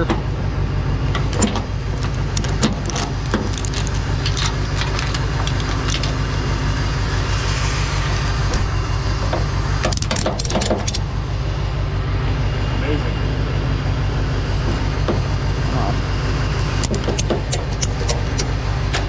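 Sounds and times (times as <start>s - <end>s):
truck engine idling: 0.0s - 19.0s
metallic chain clinks and clanks: 1.3s - 6.5s.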